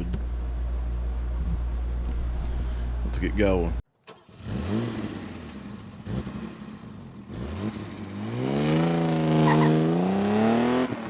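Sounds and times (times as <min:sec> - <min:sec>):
engine revving: 0:04.1 - 0:11.0.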